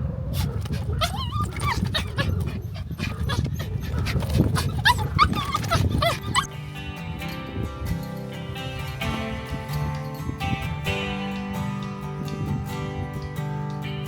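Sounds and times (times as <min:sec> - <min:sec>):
dog whining: 0:00.3 - 0:06.6
guitar background music: 0:00.8 - 0:14.0.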